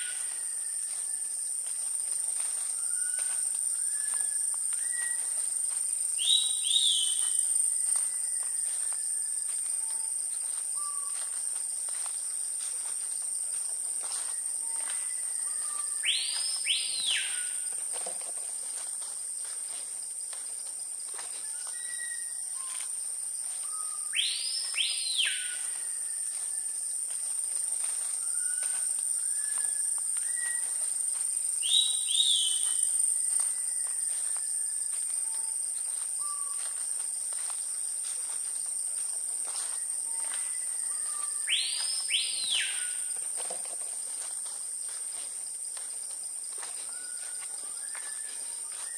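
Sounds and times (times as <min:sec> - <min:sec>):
insects high-pitched drone: 0:00.0 - 0:48.9
birds whistling softly: 0:02.7 - 0:05.4, 0:06.2 - 0:11.3, 0:14.3 - 0:17.7, 0:21.4 - 0:22.9, 0:23.6 - 0:26.6, 0:28.1 - 0:30.8, 0:31.6 - 0:35.6, 0:36.2 - 0:36.8, 0:39.6 - 0:43.5, 0:46.7 - 0:48.9.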